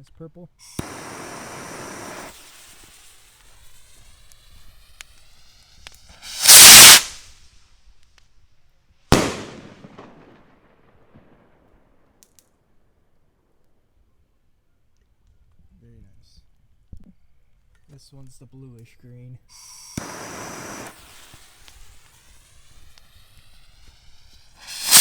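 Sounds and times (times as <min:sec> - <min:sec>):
firework rocket hissing: 0:00.6 - 0:08.0, 0:09.1 - 0:10.3, 0:19.5 - 0:25.0
firework bangs: 0:00.7 - 0:07.5, 0:09.1 - 0:11.8, 0:19.6 - 0:25.0.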